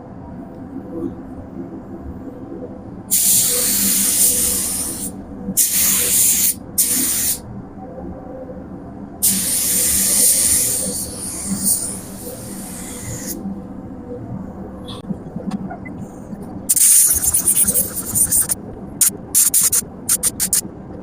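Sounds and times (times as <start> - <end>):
steady low hum: 0.0 - 21.0
paint spray gun hissing: 16.7 - 18.6.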